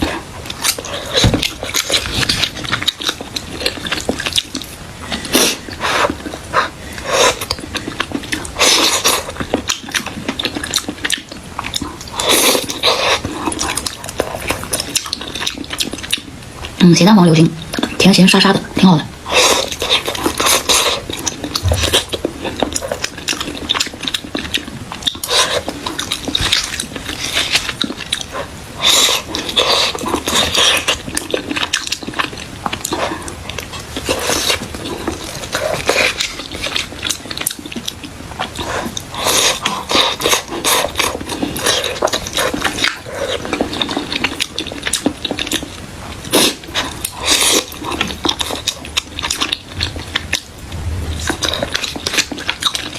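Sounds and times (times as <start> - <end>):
biting and chewing pastry: 0.0 - 16.8, 19.2 - 52.9.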